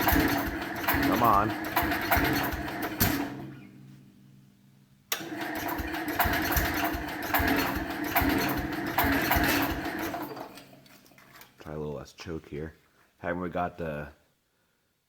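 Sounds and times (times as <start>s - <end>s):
small engine running rough: 0.0s - 3.5s, 5.4s - 10.5s.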